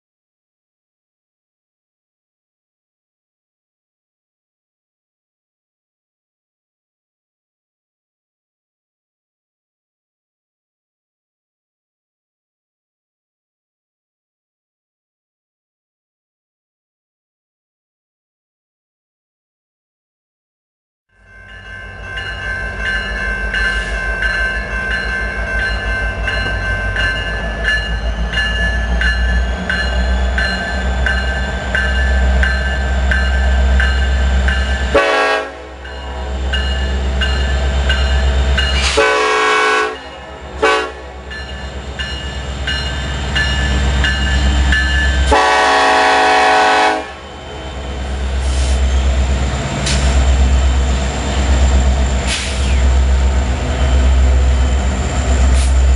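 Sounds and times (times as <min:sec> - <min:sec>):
train rumbling: 0:21.1 - 0:55.9
locomotive air horn blasts: 0:34.9 - 0:36.5, 0:38.8 - 0:41.3, 0:45.2 - 0:47.4.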